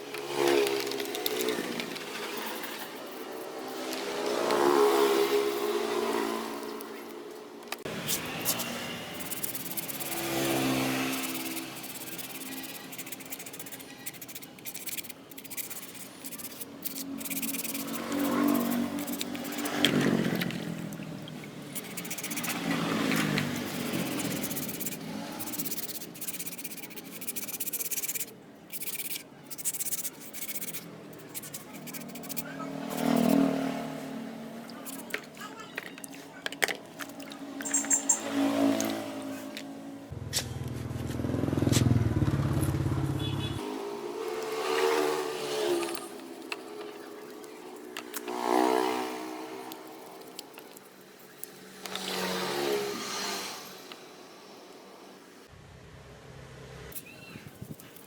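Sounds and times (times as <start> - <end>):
angle grinder scrubbing rusty metal: 8.2 - 20.7, 21.6 - 33.6.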